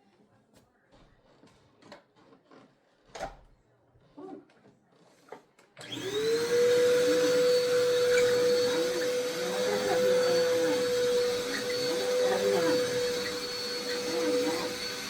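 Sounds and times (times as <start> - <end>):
vacuum cleaner motor whine: 5.8 - 15.0.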